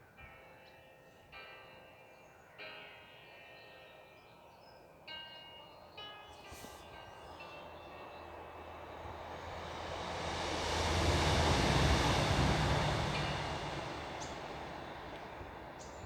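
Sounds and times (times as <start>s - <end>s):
train passing: 5.9s - 16.0s.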